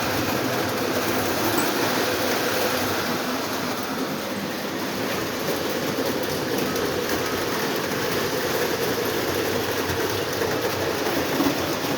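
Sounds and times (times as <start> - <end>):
wheels rumbling on rails: 0.0 - 11.9.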